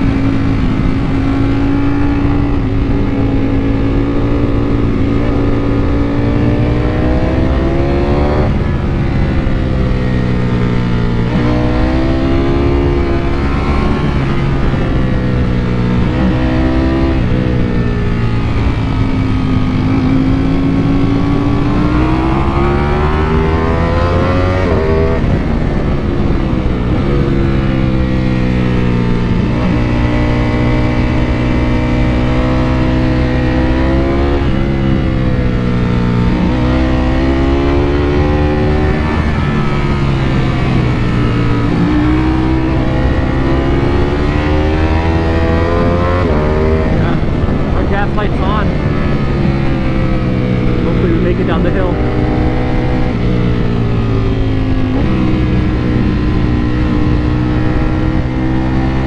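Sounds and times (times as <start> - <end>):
motorcycle engine accelerating: 0.0 - 59.0
wind noise: 0.0 - 59.0.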